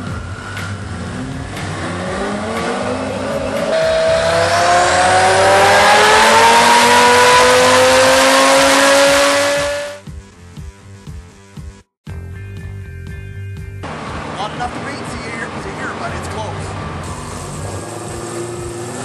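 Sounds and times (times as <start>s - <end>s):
car engine revving at full throttle: 0.0s - 10.0s, 13.8s - 19.0s.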